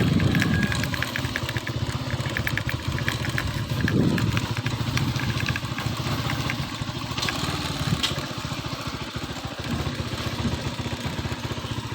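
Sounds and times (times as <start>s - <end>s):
sharp clicks: 0.0s - 8.2s
motorcycle engine running: 0.0s - 11.9s.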